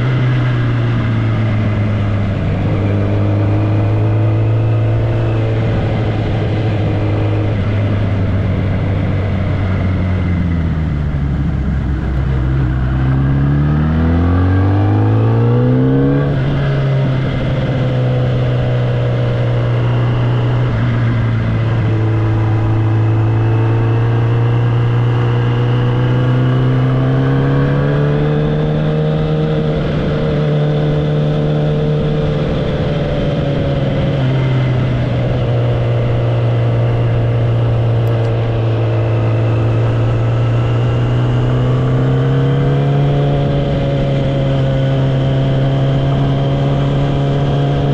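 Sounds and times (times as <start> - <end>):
motorcycle engine and exhaust: 0.0 - 47.9.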